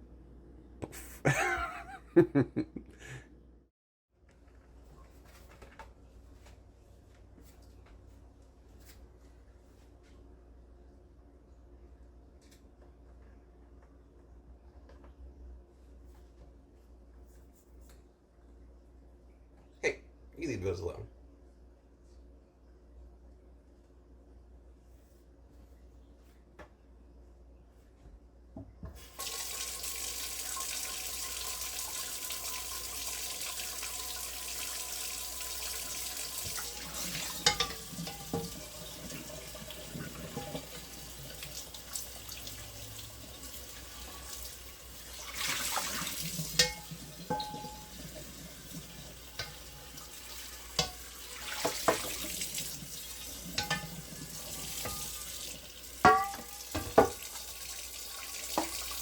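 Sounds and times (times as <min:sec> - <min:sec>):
tap water running into sink: 0:28.9 - 0:59.0.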